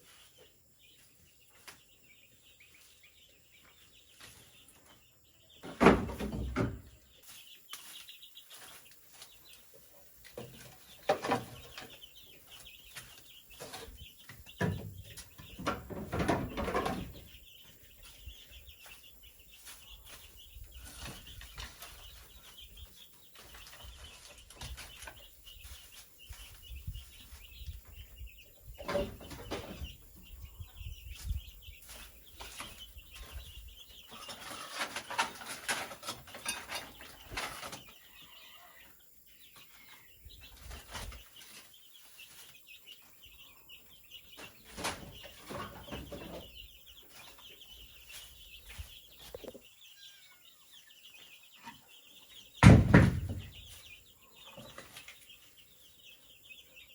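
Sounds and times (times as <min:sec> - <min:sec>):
chickens clucking: 0:00.0 - 0:56.9
knocks and rustling: 0:04.1 - 0:08.0, 0:10.2 - 0:18.2, 0:28.7 - 0:30.3, 0:31.1 - 0:38.0, 0:44.3 - 0:46.6, 0:52.6 - 0:55.2.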